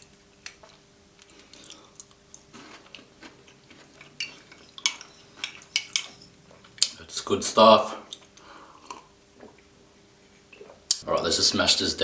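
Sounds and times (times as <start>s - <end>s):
chewing chocolate biscuit: 0.4s - 5.6s.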